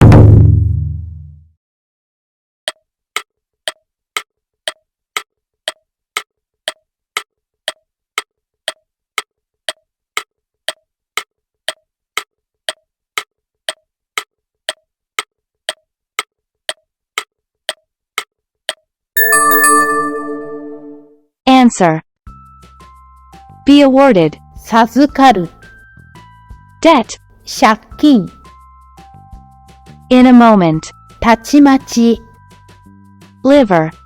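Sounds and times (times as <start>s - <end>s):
clock ticking: 9.7s - 14.8s.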